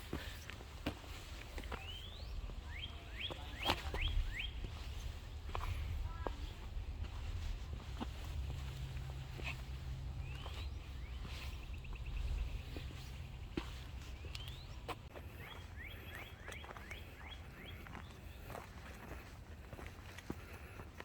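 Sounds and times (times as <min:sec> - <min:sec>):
birds calling: 0:00.0 - 0:18.9.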